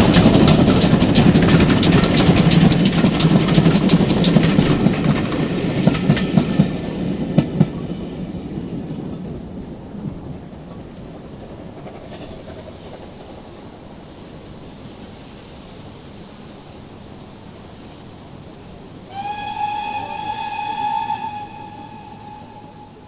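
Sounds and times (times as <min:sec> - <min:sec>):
steam hiss: 0:00.0 - 0:23.0
steam train rumbling: 0:00.0 - 0:23.0
steam locomotive whistle: 0:19.0 - 0:23.0.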